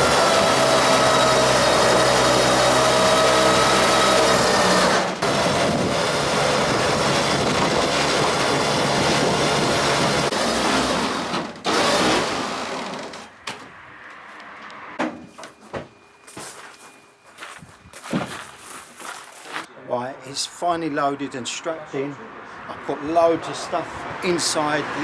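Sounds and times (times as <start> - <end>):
tow truck machinery whining: 0.0 - 17.3.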